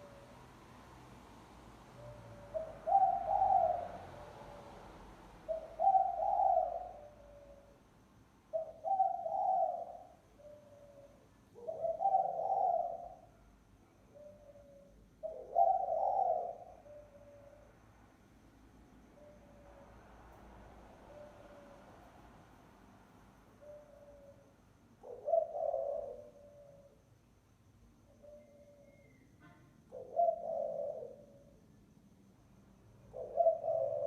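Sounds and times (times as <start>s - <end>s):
dove cooing: 2.0s - 4.8s, 5.4s - 7.8s, 8.5s - 13.4s, 14.1s - 17.7s, 23.6s - 27.0s, 29.9s - 31.6s, 33.1s - 34.0s.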